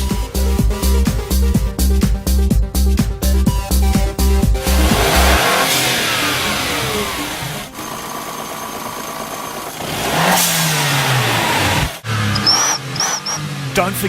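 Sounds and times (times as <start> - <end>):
electronic dance music: 3.0 - 8.0
car engine revving: 4.4 - 14.0.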